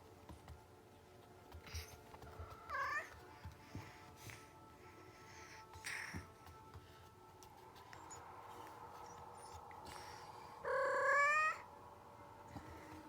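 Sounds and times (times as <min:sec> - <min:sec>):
cat calling: 0:10.6 - 0:11.7.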